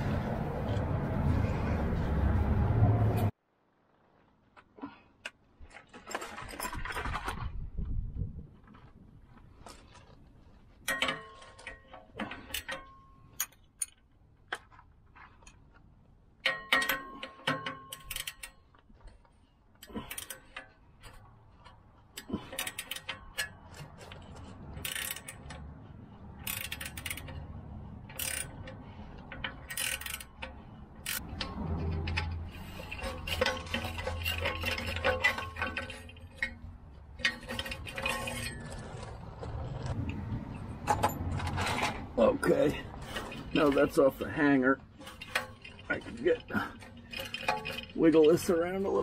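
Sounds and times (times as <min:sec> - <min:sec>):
ratchet clicking: 0:16.4 - 0:18.6, 0:24.8 - 0:25.6, 0:26.4 - 0:36.6.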